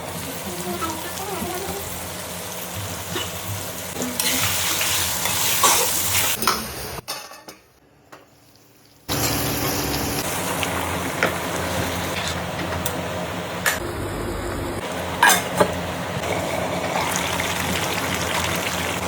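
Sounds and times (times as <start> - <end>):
curry sizzling in a pot: 0.1 - 6.4, 8.3 - 12.4, 16.2 - 19.0.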